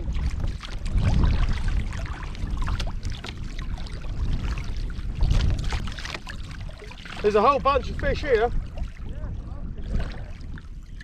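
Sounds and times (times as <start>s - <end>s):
water lapping against kayak hull: 0.0s - 11.0s
wind rumbling on microphone: 0.0s - 11.0s.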